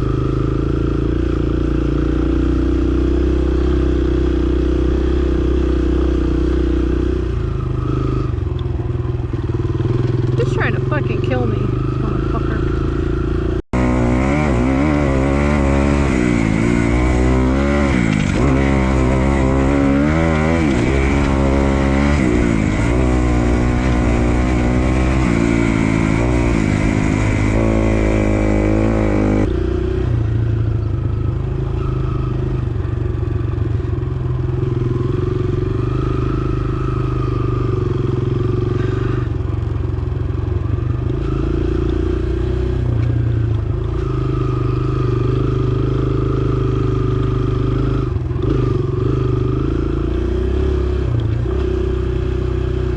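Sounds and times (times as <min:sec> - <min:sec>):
dirt bike engine revving: 0:09.3 - 0:30.4, 0:34.4 - 0:39.4, 0:43.8 - 0:52.9.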